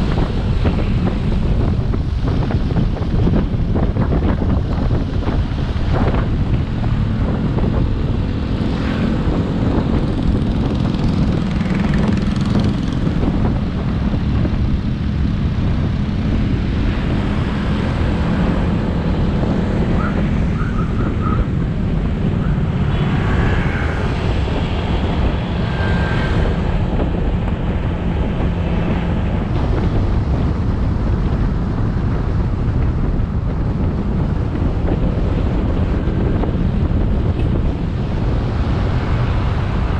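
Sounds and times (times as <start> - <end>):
road rumble: 0.0 - 39.9
wind buffeting microphone: 0.0 - 39.9
motorbike engine running: 6.0 - 17.2.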